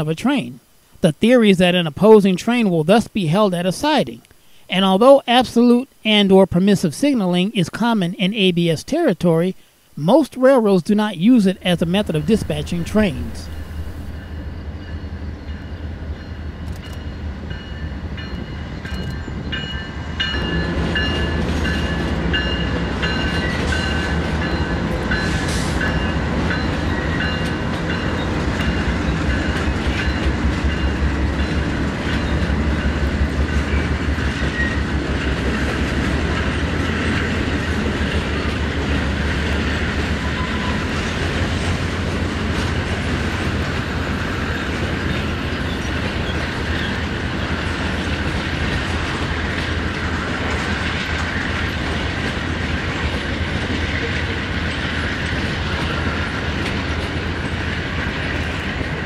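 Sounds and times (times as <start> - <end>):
high steady tone: 7.2 - 28.8
diesel locomotives rumbling: 11.2 - 59.0.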